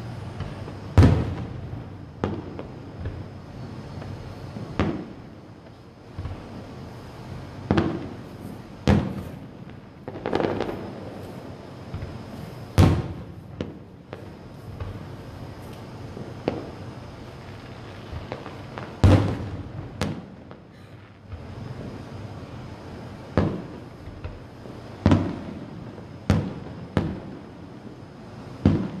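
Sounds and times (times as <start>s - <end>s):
firework shells bursting: 7.6s - 16.8s.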